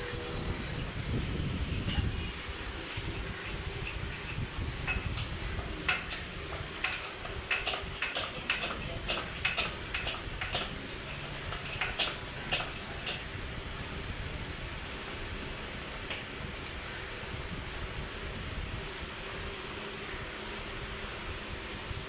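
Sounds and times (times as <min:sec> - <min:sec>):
metallic clinks and taps: 0:04.9 - 0:13.2.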